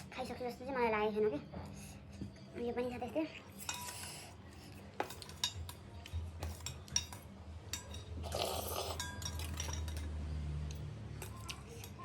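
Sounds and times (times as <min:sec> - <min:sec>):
utensils clinking against bowl: 0:03.5 - 0:12.0
slurping noise: 0:08.2 - 0:09.0.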